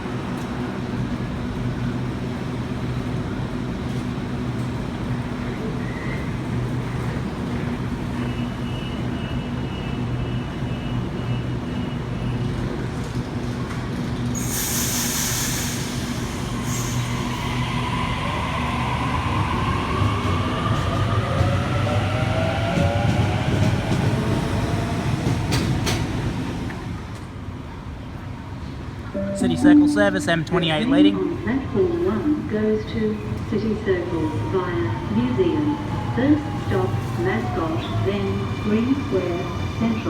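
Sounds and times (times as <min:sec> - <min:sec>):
train low hum: 0:00.0 - 0:40.0
high tone: 0:29.2 - 0:31.2.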